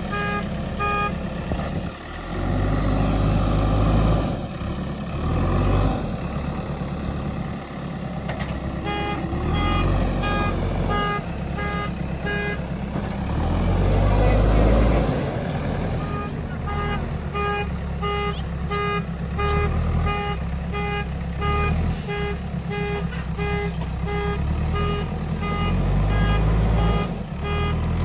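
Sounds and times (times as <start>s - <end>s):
diesel engine revving under load: 0.0s - 28.0s.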